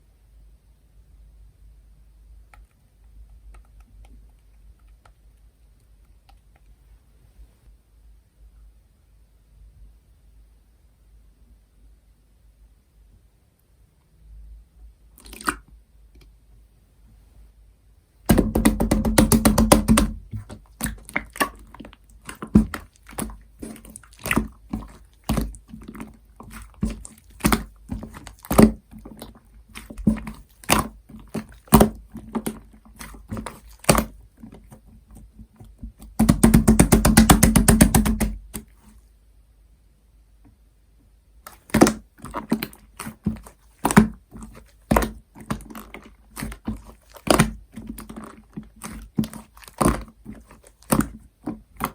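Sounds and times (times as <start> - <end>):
hands kneading wet slime: 15.1 - 16.4, 18.2 - 39.0, 41.4 - 51.9.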